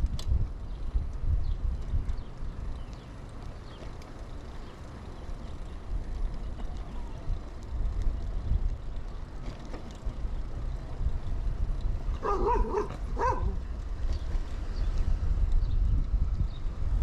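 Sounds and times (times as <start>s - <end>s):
wind and tyre noise: 0.0s - 17.0s
dog barking: 12.2s - 13.6s.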